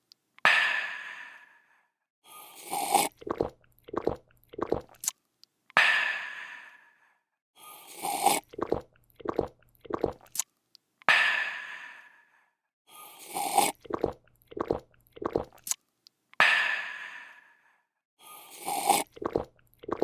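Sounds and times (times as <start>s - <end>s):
person slurping: 2.4s - 5.1s, 7.7s - 10.4s, 13.0s - 15.8s, 18.3s - 20.0s
person gulping: 2.8s - 5.1s, 8.1s - 10.4s, 13.4s - 15.8s, 18.7s - 20.0s.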